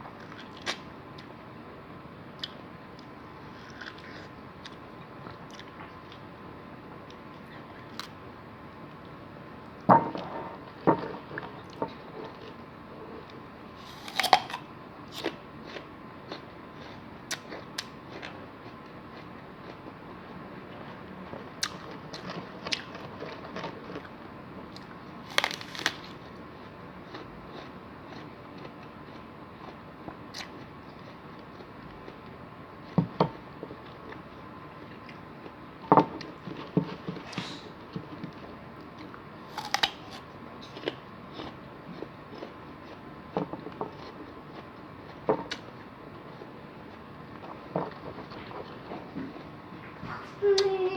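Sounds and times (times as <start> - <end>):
crunchy bites and chewing: 2.4 - 4.8, 13.8 - 19.8, 24.7 - 26.4, 39.0 - 45.7.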